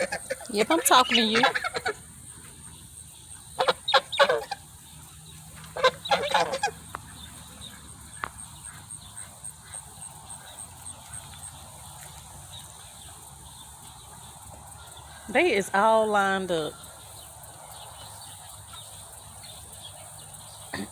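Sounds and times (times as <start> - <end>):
geese honking: 0.0 - 13.2.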